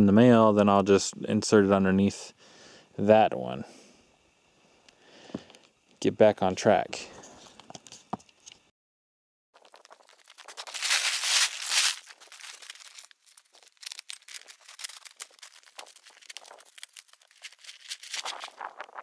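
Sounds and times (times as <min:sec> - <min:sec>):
tarp rustling and crinkling: 0:09.6 - 0:19.0.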